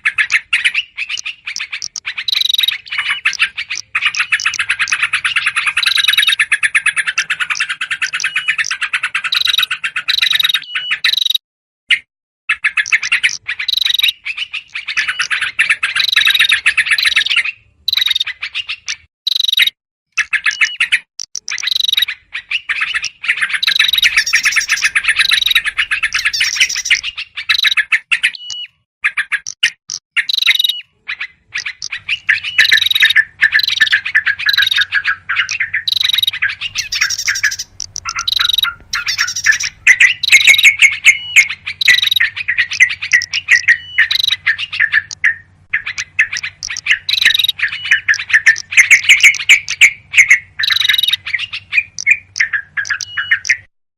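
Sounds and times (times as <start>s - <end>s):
prinia calls: 0.0s - 11.4s, 12.6s - 53.7s
bulbuls chattering: 1.5s - 8.7s, 22.9s - 27.7s, 31.6s - 49.9s.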